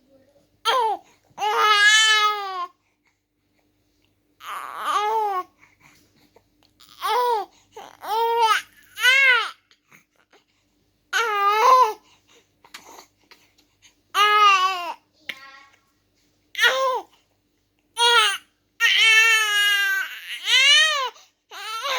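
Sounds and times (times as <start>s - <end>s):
baby cooing and babbling: 0.6s - 2.8s, 4.4s - 5.6s, 6.8s - 9.8s, 11.1s - 12.0s, 14.1s - 15.8s, 16.5s - 17.2s, 18.0s - 21.9s.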